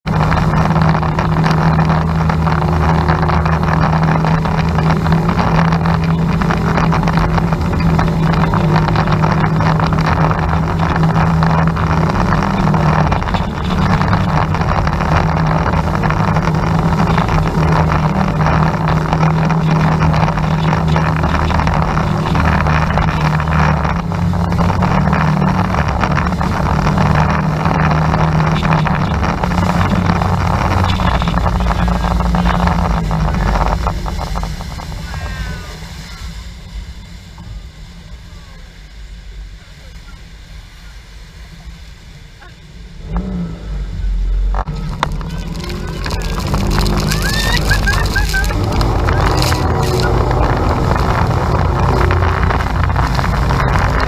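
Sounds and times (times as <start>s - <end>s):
boat motor humming: 0.0s - 54.0s
water noise: 0.0s - 54.0s
wind buffeting microphone: 44.4s - 54.0s.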